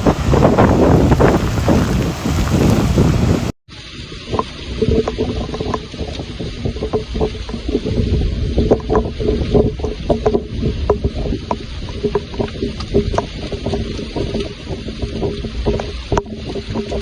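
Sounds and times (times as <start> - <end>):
rain hiss: 0.0 - 6.7
rain drops on hard surface: 0.0 - 17.0.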